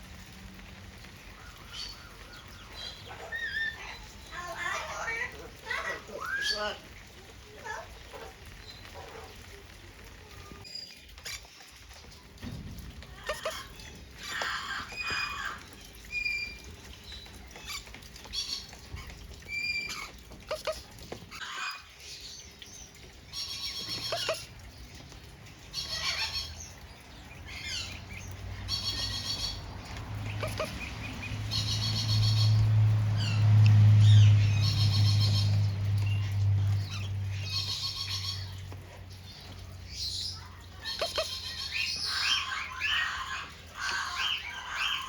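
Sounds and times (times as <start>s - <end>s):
parrots squawking: 13.1s - 15.6s, 17.6s - 21.9s, 23.5s - 24.5s, 25.8s - 26.6s, 30.2s - 32.6s, 40.8s - 45.0s.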